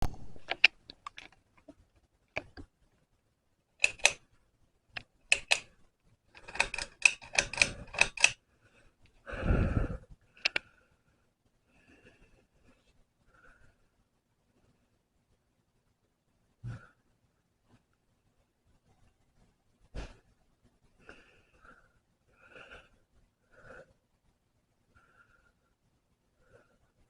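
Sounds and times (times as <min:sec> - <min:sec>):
sharp clicks: 0:00.0 - 0:01.4, 0:03.8 - 0:04.2, 0:05.0 - 0:05.7, 0:06.4 - 0:08.4, 0:10.4 - 0:10.7.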